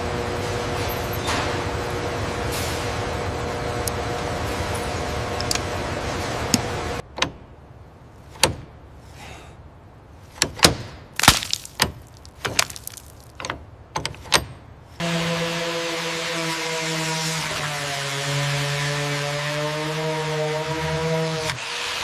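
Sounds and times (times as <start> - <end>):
sharp knocks and clicks: 8.3 - 8.7, 10.4 - 11.0, 11.8 - 14.6.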